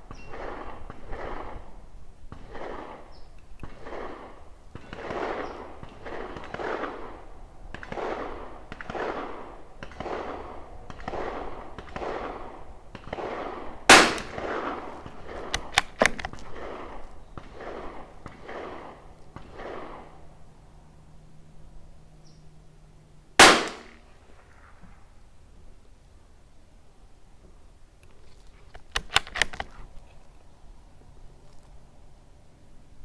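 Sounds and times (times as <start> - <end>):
rifle shot: 13.1 - 20.1, 23.4 - 24.2, 28.9 - 29.8
sharp rifle bolt clicks: 13.9 - 14.5, 15.2 - 16.7, 23.4 - 24.0, 28.0 - 30.4.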